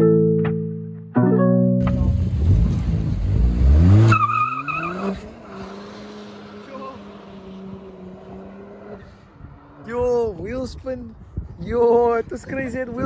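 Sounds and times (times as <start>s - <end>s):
car engine revving: 1.8s - 9.9s
tyre squeal from wheel spin: 4.0s - 5.3s.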